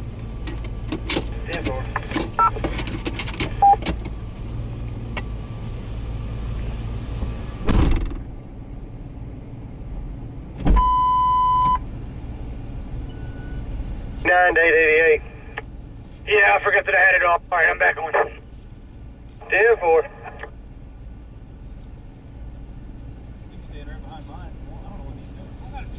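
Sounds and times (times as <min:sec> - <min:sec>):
low vehicle rumble: 0:00.0 - 0:25.9
radio clicks and chirps: 0:01.4 - 0:02.6, 0:19.4 - 0:20.6
steady radio beep: 0:01.5 - 0:02.6, 0:03.5 - 0:03.8, 0:10.8 - 0:11.8, 0:14.2 - 0:15.6, 0:16.3 - 0:18.4, 0:19.4 - 0:20.6
radio static burst: 0:14.3 - 0:15.6, 0:16.3 - 0:18.4, 0:19.4 - 0:20.5.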